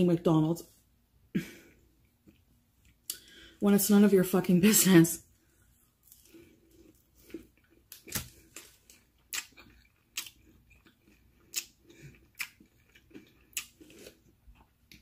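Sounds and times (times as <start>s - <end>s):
chewing with wet mouth clicks: 6.9s - 15.0s.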